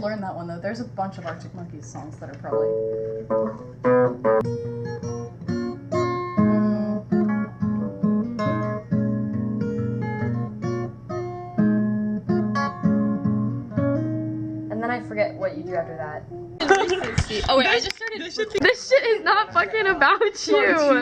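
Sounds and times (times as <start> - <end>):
acoustic guitar plucked and strummed: 2.2 - 21.0.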